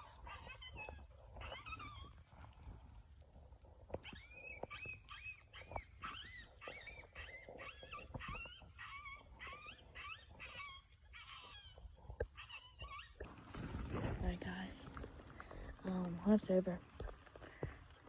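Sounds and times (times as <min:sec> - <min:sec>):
high whining yelps: 0:00.0 - 0:02.9, 0:03.8 - 0:13.3.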